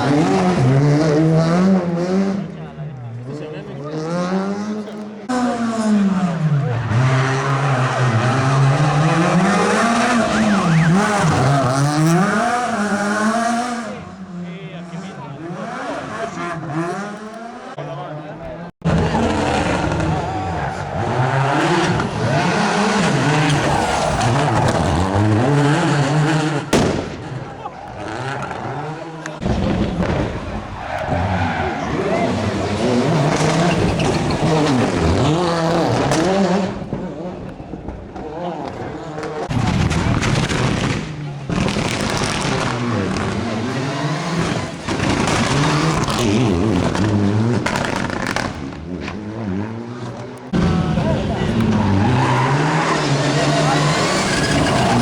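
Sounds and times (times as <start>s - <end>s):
rally car engine revving: 0.0s - 55.0s
sharp cracks: 26.7s - 27.6s, 39.5s - 43.4s.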